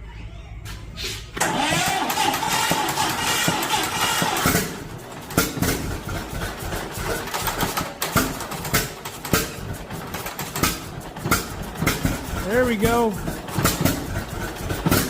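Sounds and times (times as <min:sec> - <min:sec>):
tractor engine starting with uneven pops: 0:00.7 - 0:15.0.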